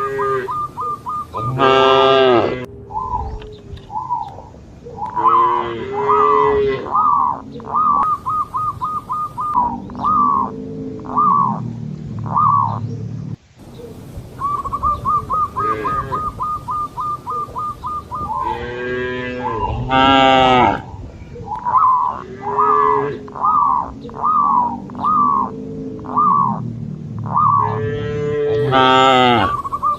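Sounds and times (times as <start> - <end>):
cattle mooing: 0.0 - 0.5, 1.4 - 2.7, 5.2 - 7.0, 15.6 - 16.3, 18.4 - 20.9, 27.6 - 29.6.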